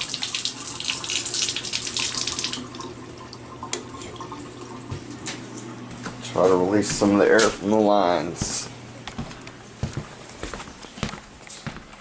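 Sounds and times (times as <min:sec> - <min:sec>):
faucet water rushing: 0:00.0 - 0:05.3
steady low hum: 0:00.8 - 0:12.0.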